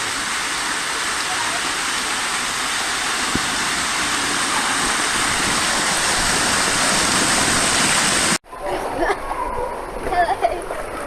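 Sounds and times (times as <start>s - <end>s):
water showering from sprayers: 0.0s - 8.4s.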